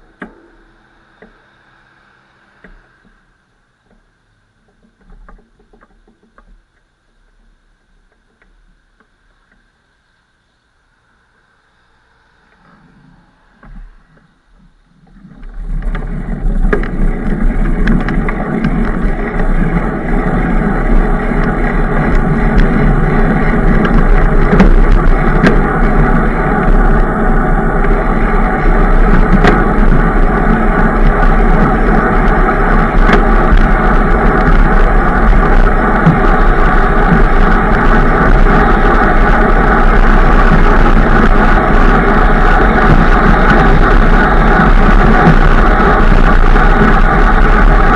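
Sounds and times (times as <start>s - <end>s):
wind and running noise of ride: 0.0s - 47.9s.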